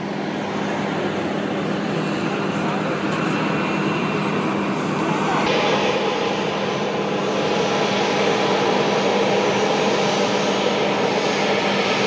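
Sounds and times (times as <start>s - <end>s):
airliner engines running: 0.0s - 12.0s.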